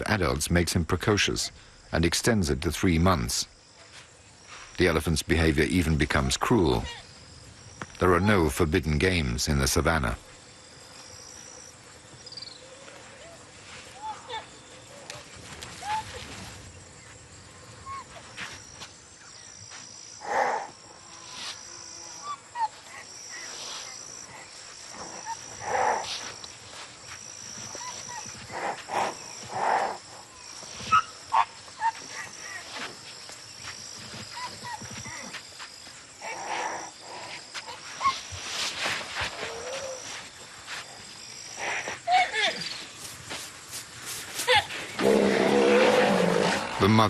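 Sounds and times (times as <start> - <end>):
insects trilling: 0.0 - 47.0
rhinoceros calf squealing: 30.7 - 32.7.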